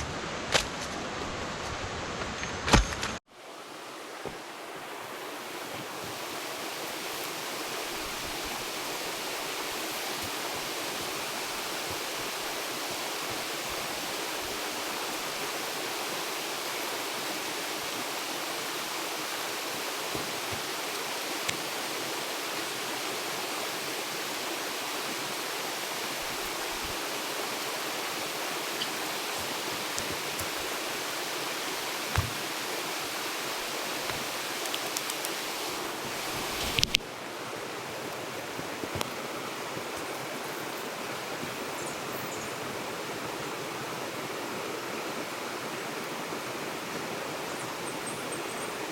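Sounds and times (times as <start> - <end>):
flowing water rushing: 3.2 - 48.1
knock: 32.2 - 32.4.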